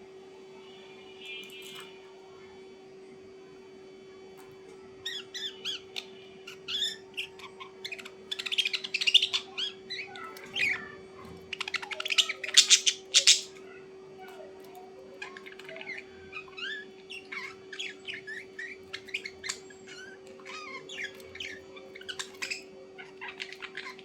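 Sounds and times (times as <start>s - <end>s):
bird chirping: 5.0s - 13.8s, 15.2s - 24.0s
bird squawking harshly: 11.6s - 13.6s.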